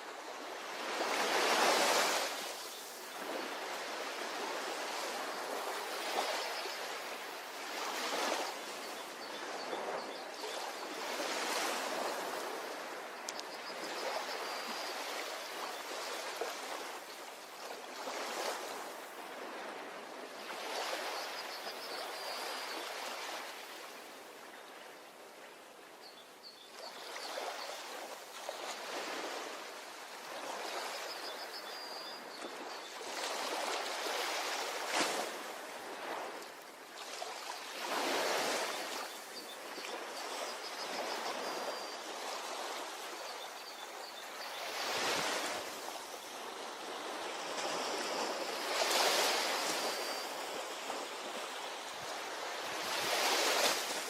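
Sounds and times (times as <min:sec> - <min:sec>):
faint high chirping trills: 0:30.7 - 0:33.0.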